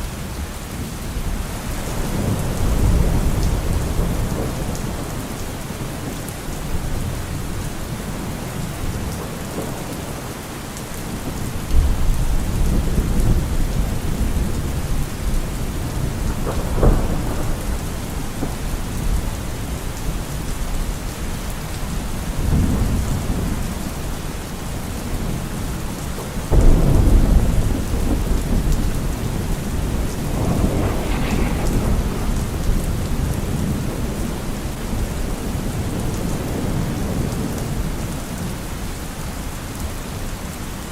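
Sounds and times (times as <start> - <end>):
steady rain: 0.0 - 40.9
thunder crack: 26.5 - 35.6
thunder rumbling: 26.5 - 37.9.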